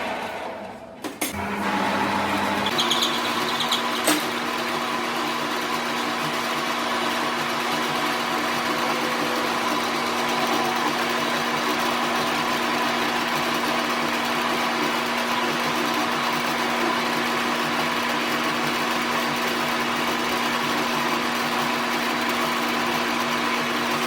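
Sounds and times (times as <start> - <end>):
machine motor humming: 0.0 - 18.0.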